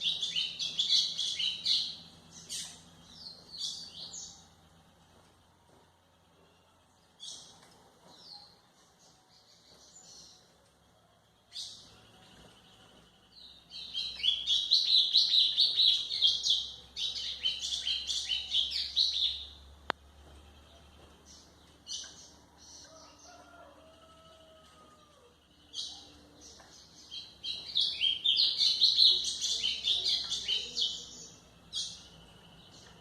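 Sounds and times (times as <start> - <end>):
bird singing chirps and trills: 0.0 - 4.7, 11.4 - 23.7, 24.3 - 33.0.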